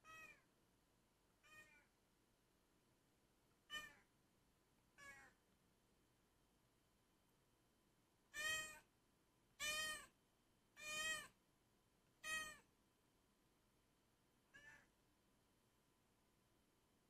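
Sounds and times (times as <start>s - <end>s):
cat meowing: 0.0s - 0.4s, 1.4s - 1.9s, 3.7s - 4.1s, 5.0s - 5.4s, 8.3s - 8.9s, 9.6s - 10.1s, 10.8s - 11.4s, 12.2s - 12.7s, 14.5s - 14.9s.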